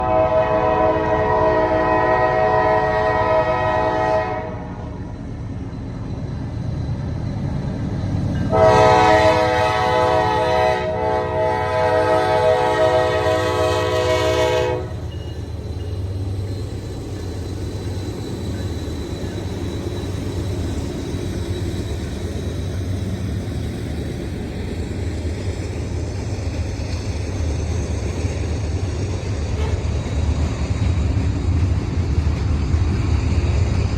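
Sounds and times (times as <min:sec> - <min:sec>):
locomotive air horn blasts: 0:00.0 - 0:04.9, 0:08.5 - 0:15.0
low rumble of moving train: 0:00.0 - 0:33.9.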